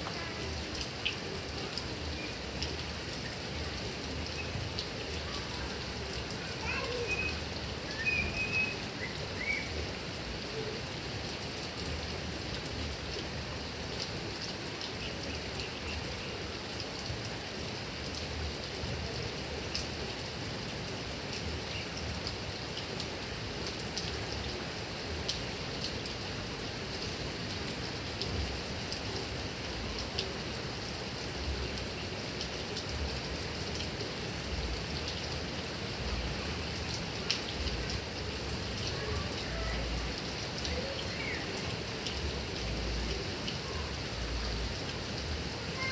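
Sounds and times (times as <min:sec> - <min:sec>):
heavy rain on grass: 0:00.0 - 0:45.9
water drip ticks: 0:36.1 - 0:38.1, 0:39.9 - 0:43.6.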